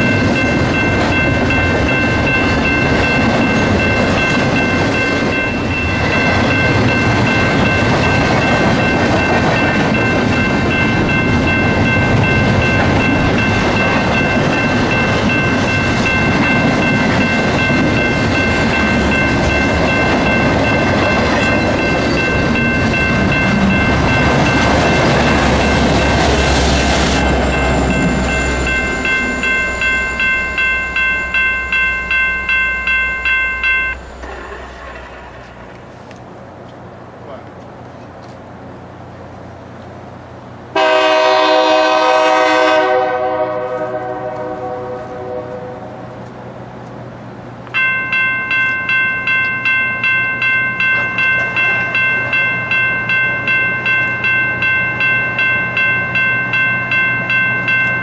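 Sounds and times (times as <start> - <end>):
crossing bell ringing: 0.0 - 36.0, 40.8 - 46.2, 47.6 - 58.0
train wheels rumbling and clattering: 0.0 - 42.8.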